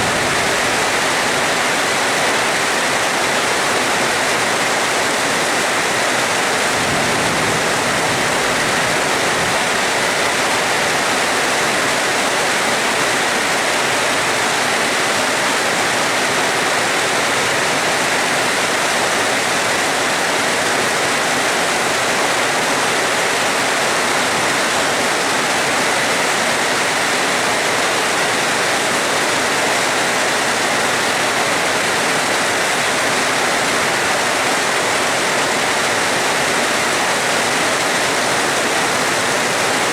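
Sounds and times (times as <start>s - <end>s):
heavy rain hissing: 0.0s - 11.7s.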